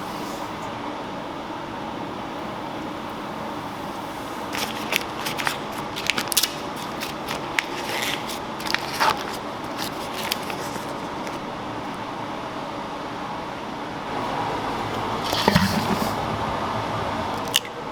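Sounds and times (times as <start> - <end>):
steady background noise: 0.0 - 17.9
kitchen clicks and clatters: 15.2 - 16.3.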